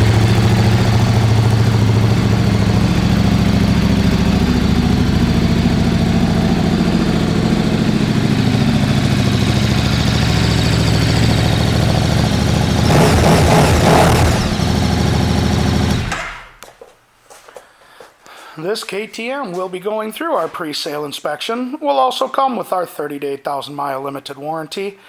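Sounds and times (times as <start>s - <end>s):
motorcycle engine idling: 0.0s - 16.6s.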